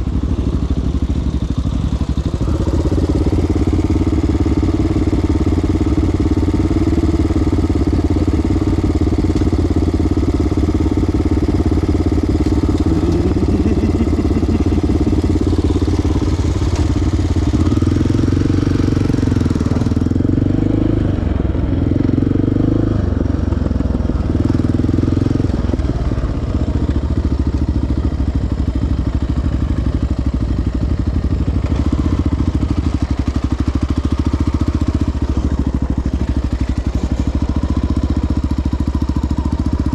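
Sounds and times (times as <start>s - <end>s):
quad engine running at low speed: 0.0s - 39.9s.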